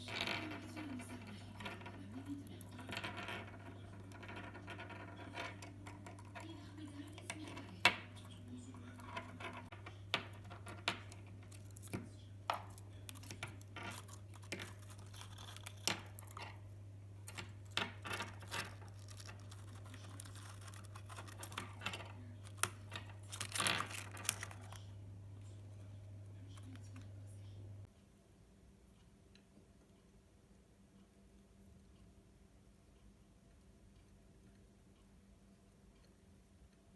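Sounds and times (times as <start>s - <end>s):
steady low hum: 0.0s - 36.9s
birds clicking and tapping: 3.7s - 24.8s
crinkling rustles: 12.7s - 16.6s, 17.3s - 24.8s.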